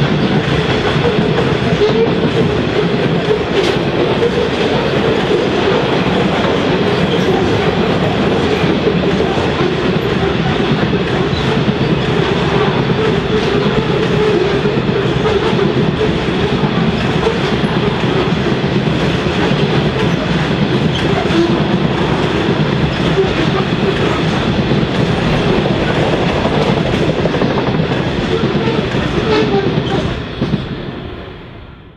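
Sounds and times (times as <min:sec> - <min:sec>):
steel wheels rumbling on rails: 0:00.0 - 0:31.7.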